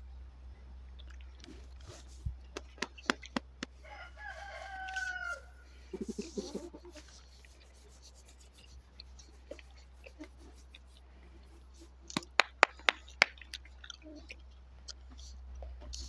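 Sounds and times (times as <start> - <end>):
low clucks: 1.0 - 16.0
rooster crowing: 3.8 - 6.8.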